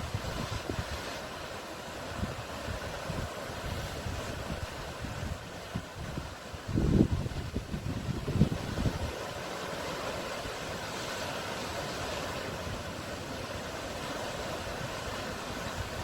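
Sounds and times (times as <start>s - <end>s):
wind buffeting microphone: 0.0s - 1.0s, 2.1s - 9.6s
sea waves washing on shore: 0.0s - 16.0s.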